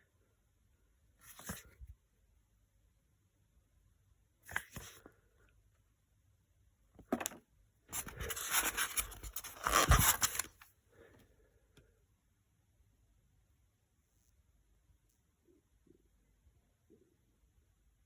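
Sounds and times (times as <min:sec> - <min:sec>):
scraping and rubbing handling noise: 0:07.0 - 0:10.7.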